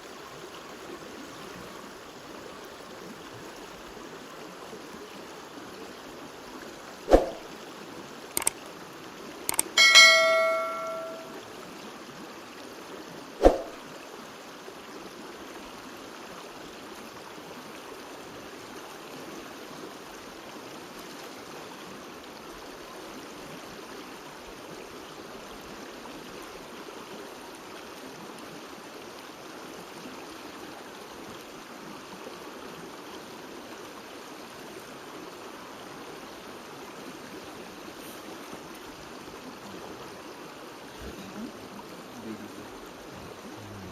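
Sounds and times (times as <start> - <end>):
stream running: 0.0 - 43.9
sharp knocks: 9.5 - 11.3
struck metal object ringing: 9.5 - 11.4.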